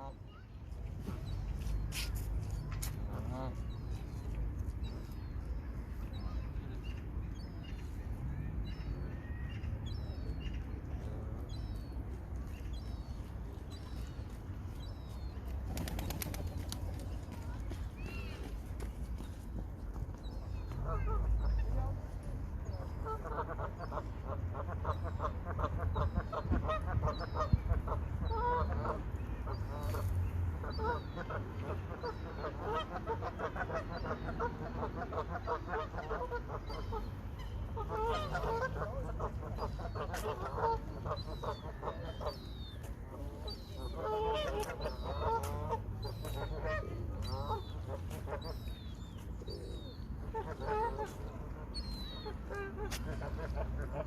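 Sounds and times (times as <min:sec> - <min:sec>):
flock of waterfowl calling: 0:22.8 - 0:54.0.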